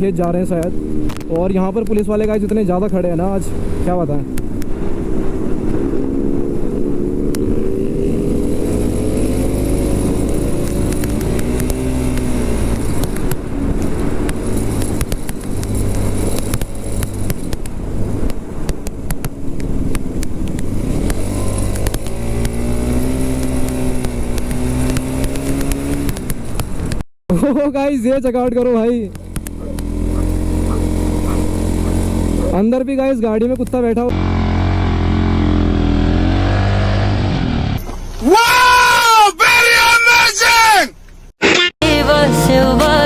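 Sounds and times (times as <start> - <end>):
motorcycle engine running: 0.0 - 27.0, 28.0 - 37.8
wind rumble on microphone: 0.0 - 27.0.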